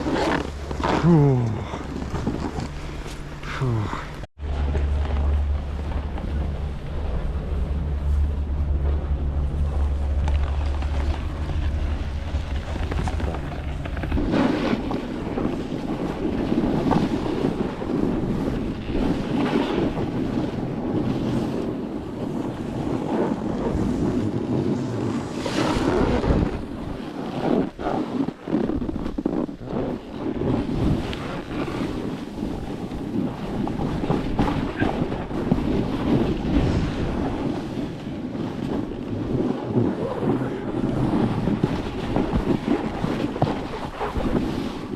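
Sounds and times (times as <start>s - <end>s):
heavy low rumble: 0.0s - 23.0s, 32.3s - 44.9s
blizzard wind buffeting microphone: 0.0s - 44.9s.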